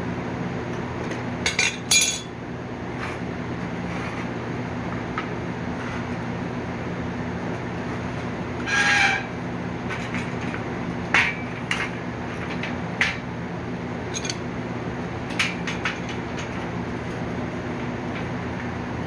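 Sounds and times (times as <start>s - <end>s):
steady low hum: 0.0s - 19.0s
metal bed frame parts clanking: 1.7s - 2.3s.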